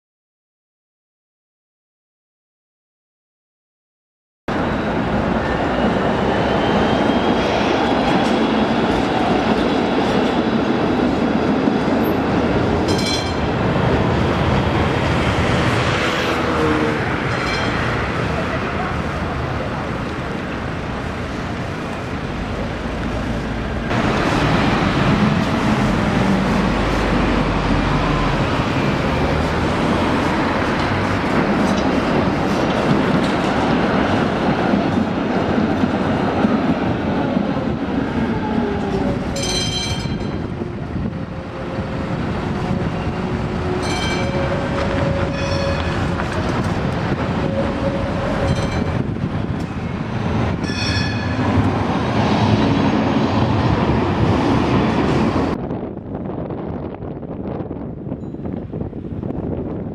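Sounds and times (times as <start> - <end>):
tram wheels rumbling on track: 4.5 - 59.9
wheels squealing on rail: 4.6 - 9.4, 38.4 - 53.1.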